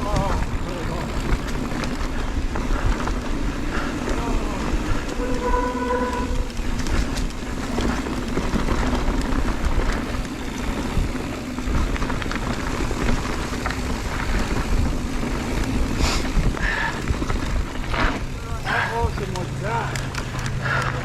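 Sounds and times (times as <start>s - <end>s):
bike rattling and clicking: 0.0s - 21.0s
bike tyres rolling on dirt trail: 0.0s - 21.0s.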